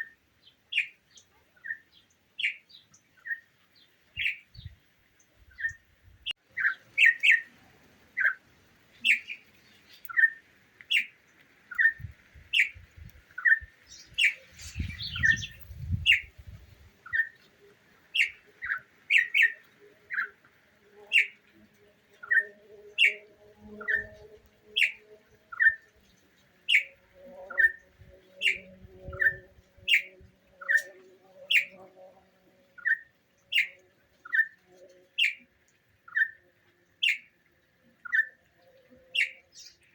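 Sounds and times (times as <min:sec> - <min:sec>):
bird chirping: 0:06.5 - 0:07.5, 0:08.2 - 0:20.4, 0:38.0 - 0:39.9.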